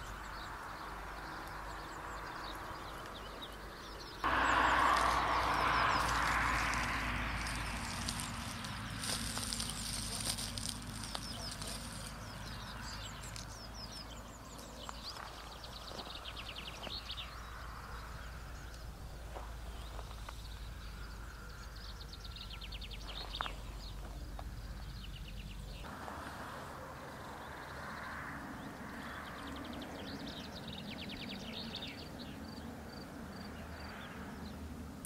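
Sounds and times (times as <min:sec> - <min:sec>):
small birds trilling: 0:00.0 - 0:34.7
low hum: 0:04.2 - 0:28.9.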